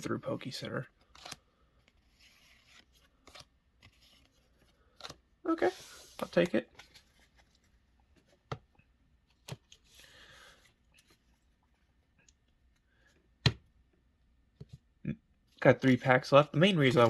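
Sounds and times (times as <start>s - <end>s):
cards rustling: 0.1s - 8.6s, 9.2s - 11.6s, 15.6s - 17.0s
cards clicking and tapping: 16.8s - 17.0s.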